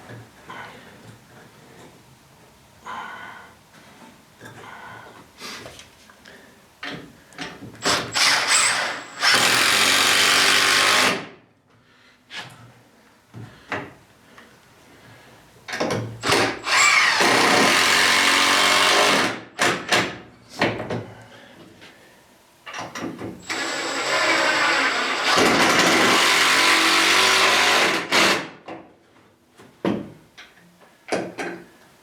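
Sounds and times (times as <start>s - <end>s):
power drill boring into wood: 7.8s - 11.2s, 16.2s - 19.4s, 23.4s - 28.4s
knocks of wood and tools: 19.6s - 21.1s, 29.6s - 30.5s, 31.1s - 31.7s.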